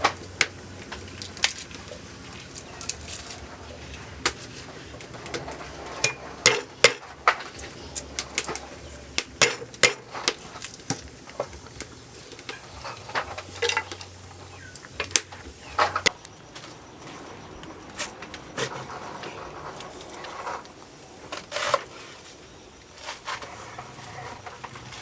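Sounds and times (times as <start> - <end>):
utensils and dishes clinking: 0.0 - 16.2.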